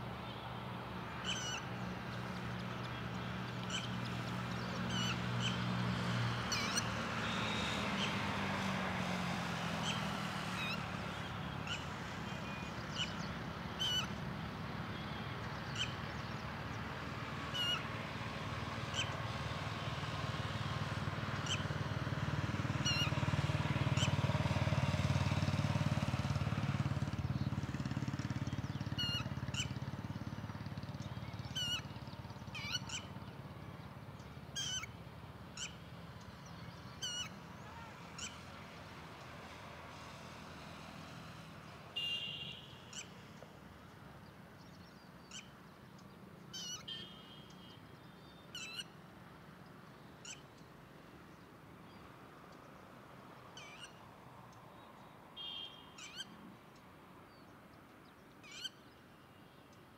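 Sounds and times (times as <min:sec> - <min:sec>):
sharp bird calls: 0:01.1 - 0:08.4, 0:09.7 - 0:14.2, 0:17.4 - 0:17.9, 0:21.4 - 0:21.8, 0:28.4 - 0:30.2, 0:31.0 - 0:33.3, 0:34.2 - 0:38.6, 0:42.0 - 0:43.3, 0:44.9 - 0:49.0, 0:50.2 - 0:50.7, 0:53.4 - 0:54.0, 0:54.8 - 0:56.4, 0:58.3 - 0:59.4.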